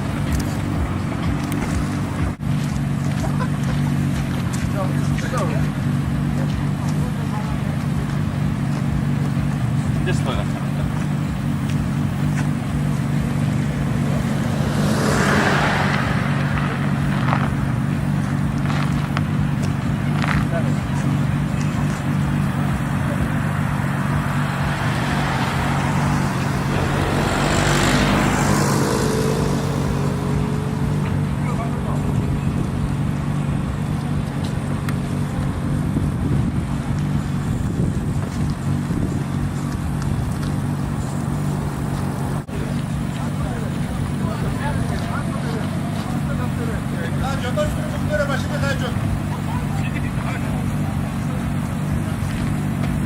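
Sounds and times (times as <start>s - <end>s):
low engine rumble: 0.0s - 53.0s
car passing by: 13.3s - 19.2s, 21.6s - 32.7s.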